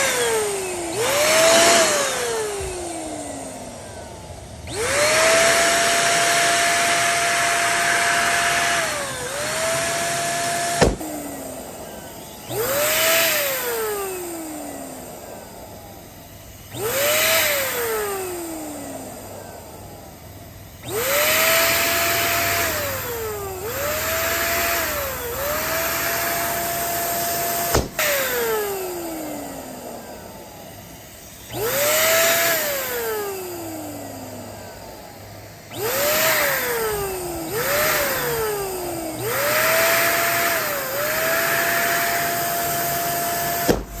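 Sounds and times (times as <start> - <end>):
electric pump motor whine: 0.0 - 44.0
air hissing: 9.8 - 12.2, 27.3 - 28.4, 39.4 - 44.0
balloon popping: 10.7 - 11.2, 27.7 - 28.1, 43.6 - 44.0.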